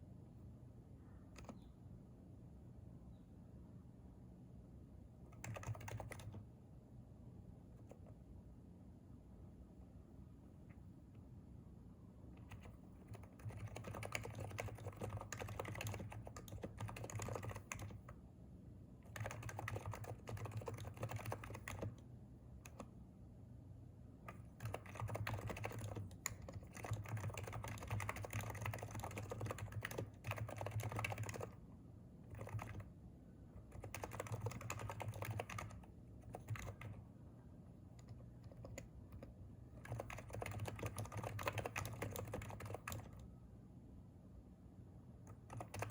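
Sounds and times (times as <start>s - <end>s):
keyboard typing: 1.3s - 1.7s, 5.3s - 6.5s, 12.4s - 18.2s, 19.0s - 22.0s, 22.6s - 22.9s, 24.3s - 31.6s, 32.2s - 32.9s, 33.6s - 37.0s, 37.9s - 43.3s, 45.3s - 45.9s.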